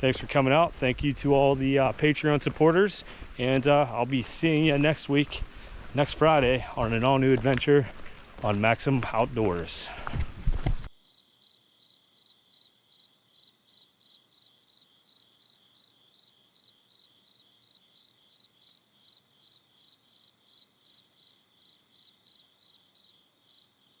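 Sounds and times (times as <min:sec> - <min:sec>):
cricket chirping: 0:10.4 - 0:24.0.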